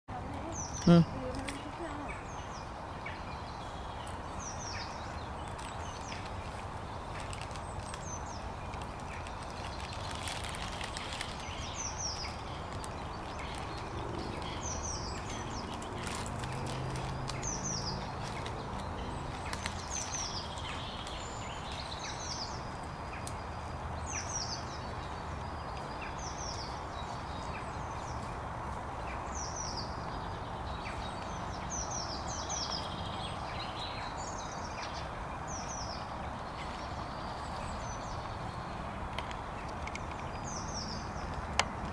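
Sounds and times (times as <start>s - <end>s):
outdoor background noise: 0.1s - 41.9s
bird calling: 0.3s - 2.5s.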